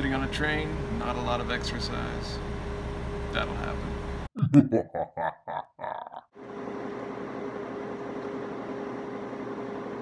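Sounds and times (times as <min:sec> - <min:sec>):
steady hum: 0:00.0 - 0:04.3.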